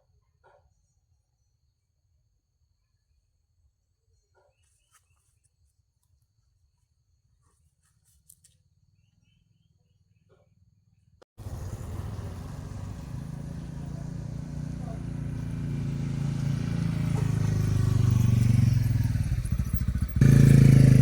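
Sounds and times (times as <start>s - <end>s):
distant calls: 11.4s - 21.0s
loud motor noise: 11.4s - 21.0s.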